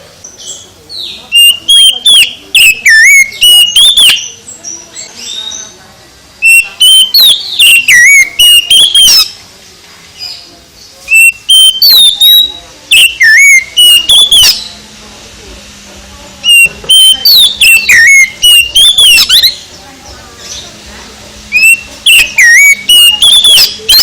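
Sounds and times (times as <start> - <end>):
bird singing whistled phrases: 0.4 - 5.8, 6.4 - 9.4, 11.1 - 14.8, 16.4 - 19.7, 21.5 - 24.0.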